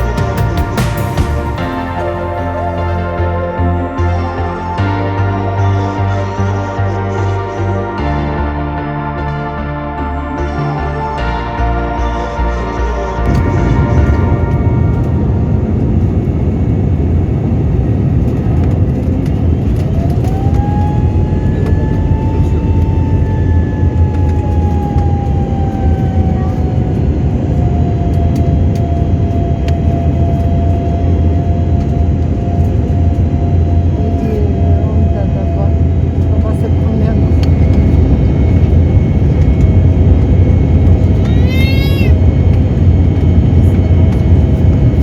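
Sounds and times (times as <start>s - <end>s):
airliner cabin rumble: 0.0s - 8.0s, 13.2s - 45.0s
jet engine whine: 13.2s - 45.0s.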